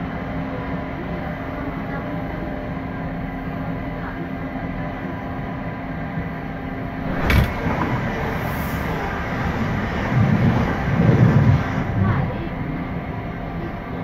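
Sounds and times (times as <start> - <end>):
low hum: 6.7 - 13.7
train wheels rumbling: 6.8 - 14.0.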